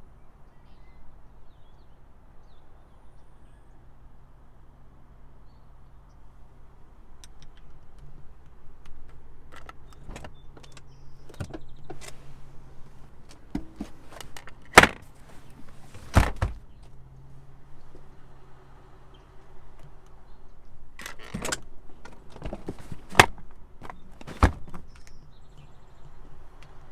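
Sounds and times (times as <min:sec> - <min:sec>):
clicks and knocks: 0:12.9 - 0:16.6, 0:21.0 - 0:25.1
loud thumps: 0:13.5 - 0:16.8, 0:22.3 - 0:25.0.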